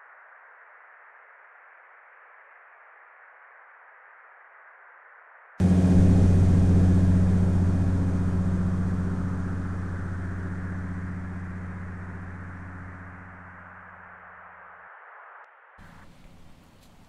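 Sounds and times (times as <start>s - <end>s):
thunder rumble: 5.6s - 14.0s.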